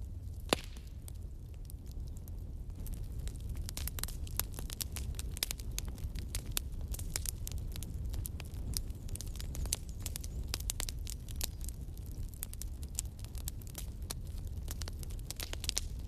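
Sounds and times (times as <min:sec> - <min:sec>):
low rumble of burning fire: 0:00.0 - 0:16.0
wood popping and snapping: 0:00.4 - 0:00.9.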